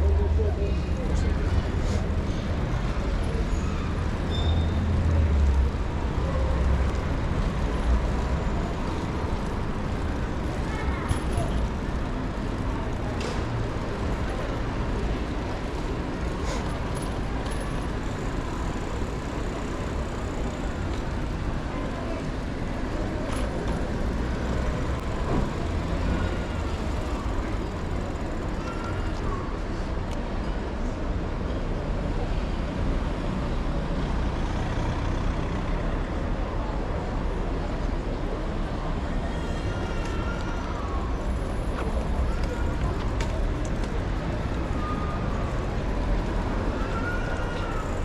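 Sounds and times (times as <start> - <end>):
city street traffic: 0.0 - 48.0
passing motor vehicles rumble: 0.0 - 48.0.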